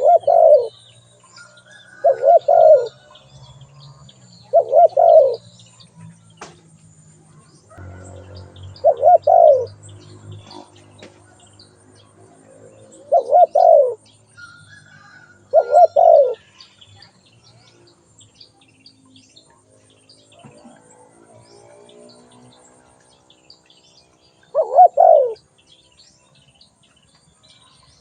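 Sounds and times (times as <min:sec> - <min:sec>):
dove cooing: 0:00.0 - 0:00.8, 0:01.9 - 0:03.2, 0:04.5 - 0:05.5, 0:07.8 - 0:11.3, 0:12.2 - 0:14.0, 0:15.4 - 0:16.5, 0:24.5 - 0:25.4.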